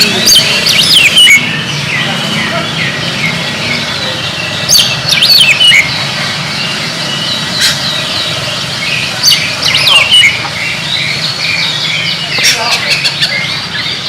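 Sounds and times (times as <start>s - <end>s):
bird singing whistled phrases: 0.0s - 2.1s
soft bird chirps: 0.0s - 14.0s.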